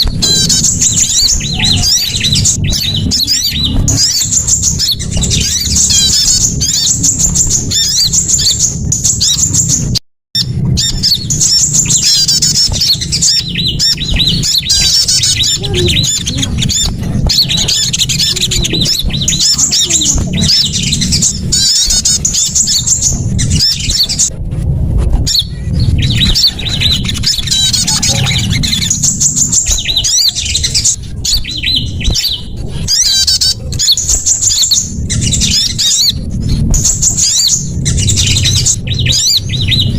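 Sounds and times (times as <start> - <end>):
songbirds chirping and twittering: 0.0 - 39.9
steady low rumble: 0.0 - 39.9.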